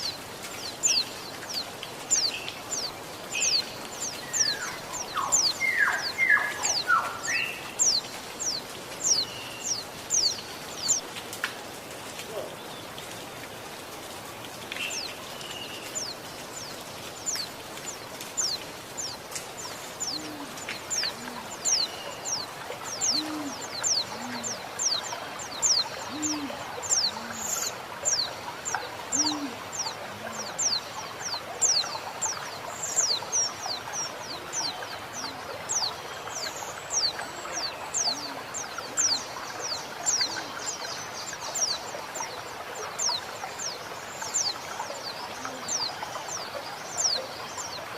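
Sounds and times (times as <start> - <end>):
flowing water: 0.0 - 47.9.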